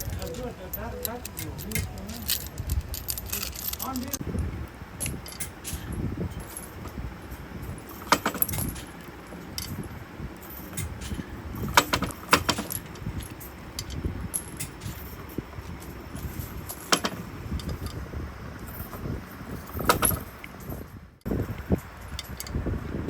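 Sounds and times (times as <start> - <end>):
small metal pieces clinking: 0.0 - 4.2.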